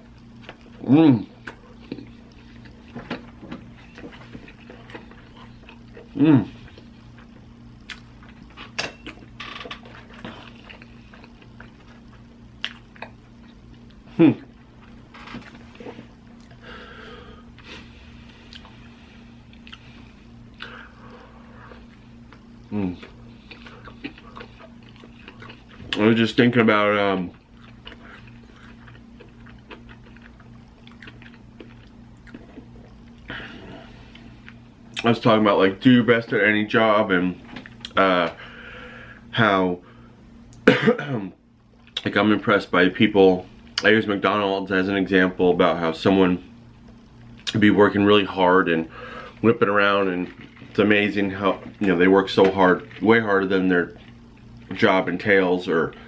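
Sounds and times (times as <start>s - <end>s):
wet chewing and smacking: 0.0s - 16.6s, 17.6s - 26.2s, 27.1s - 33.4s, 37.5s - 38.0s, 50.0s - 54.8s
steady low hum: 0.0s - 56.0s.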